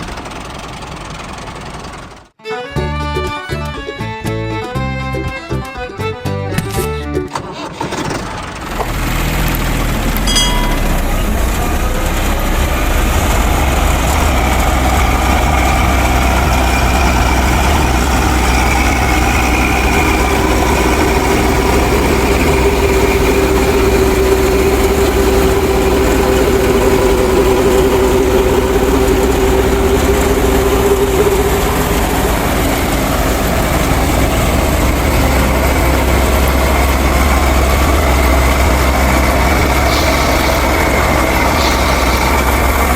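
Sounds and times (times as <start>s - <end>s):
motor humming: 10.1s - 42.9s
steady whine: 10.2s - 42.9s.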